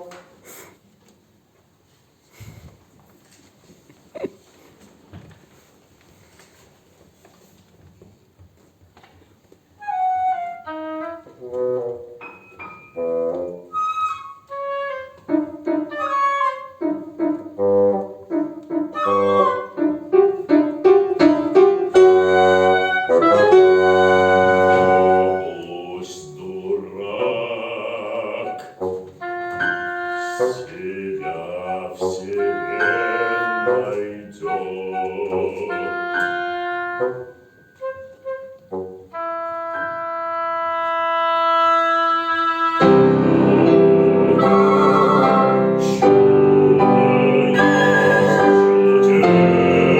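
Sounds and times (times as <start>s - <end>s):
chamber ensemble playing: 22.0s - 38.4s, 42.8s - 49.9s.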